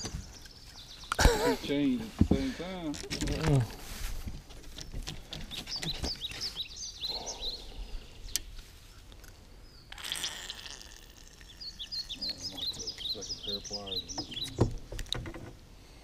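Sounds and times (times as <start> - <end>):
small bird chirping: 4.8 - 8.6, 9.6 - 14.9
light clicks and knocks: 14.1 - 15.6.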